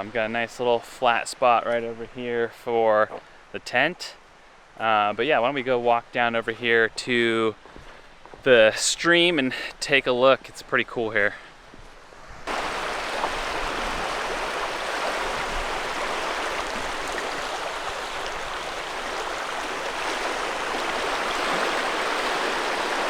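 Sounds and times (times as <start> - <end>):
stream water rushing: 12.5 - 23.0.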